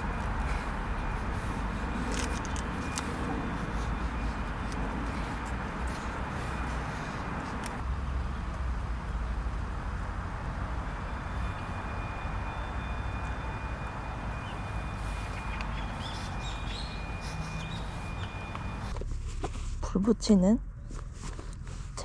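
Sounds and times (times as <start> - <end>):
faint bird chirps: 14.3 - 18.8
low rumble: 18.3 - 22.0.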